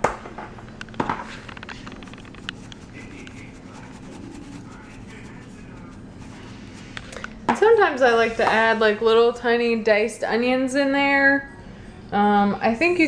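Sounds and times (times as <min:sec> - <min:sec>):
steady low hum: 0:00.4 - 0:07.7.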